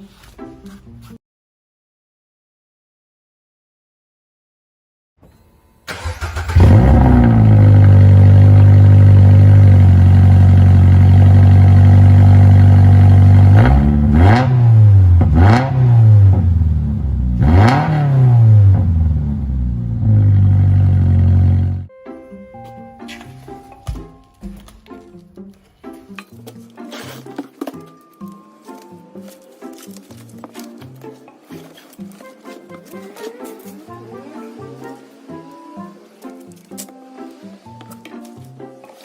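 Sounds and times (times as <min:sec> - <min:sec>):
car engine starting and idling: 0:05.9 - 0:21.9
engine revving blips: 0:05.9 - 0:21.9.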